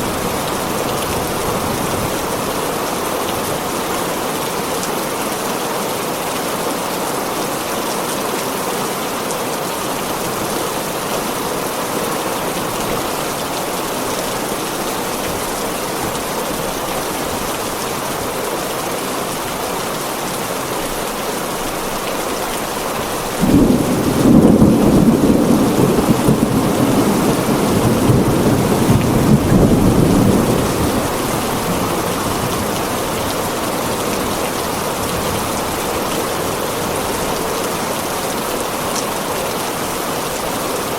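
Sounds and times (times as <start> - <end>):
heavy rain on a tin roof: 0.0 - 40.9
thunder clap and rumble: 23.4 - 33.3.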